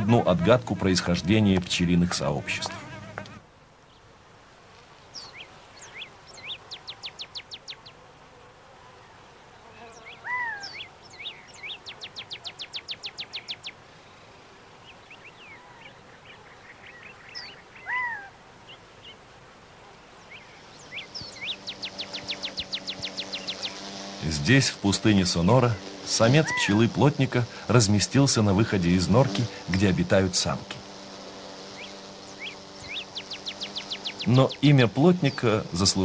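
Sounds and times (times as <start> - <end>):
birds chirping: 0.0 - 4.2, 5.0 - 8.2, 8.8 - 36.0
bird trills: 5.1 - 8.0, 10.0 - 13.8, 14.8 - 19.2, 20.2 - 23.9, 26.3 - 26.8, 31.7 - 34.6
downward-slurred bird call: 10.1 - 13.6, 15.2 - 18.4, 26.3 - 26.9.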